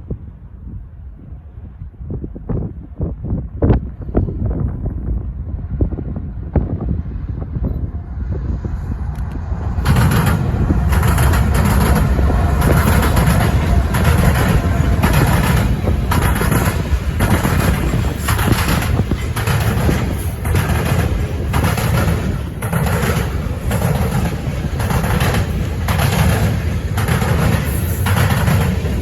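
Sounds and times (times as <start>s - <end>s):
freight train rumbling: 0.0s - 29.0s
wheels clattering on rails: 9.0s - 29.0s.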